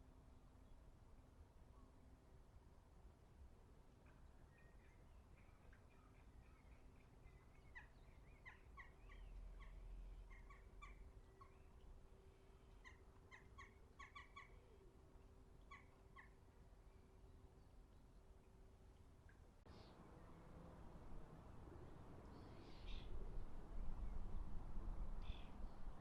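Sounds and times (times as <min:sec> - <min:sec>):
faint steady hum: 0:00.0 - 0:26.0
faint bird chirps: 0:22.3 - 0:23.2, 0:25.2 - 0:26.0.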